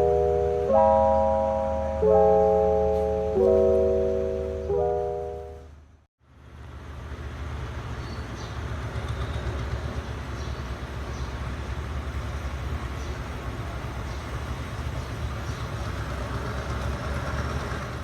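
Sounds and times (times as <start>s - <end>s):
train carriage rumbling: 7.3s - 18.0s.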